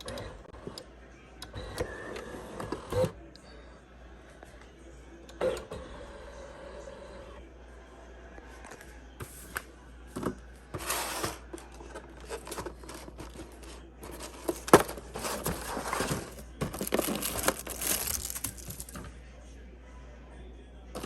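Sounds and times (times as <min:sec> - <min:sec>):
plastic packaging crinkling: 0:12.2 - 0:19.1.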